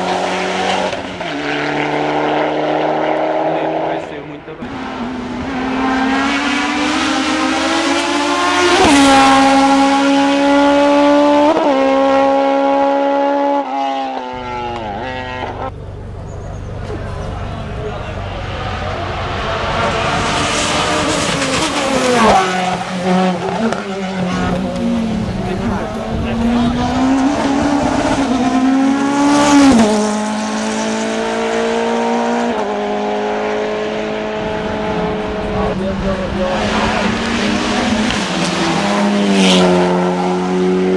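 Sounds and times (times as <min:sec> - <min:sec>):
race car engine at high revs: 0:00.0 - 0:40.9.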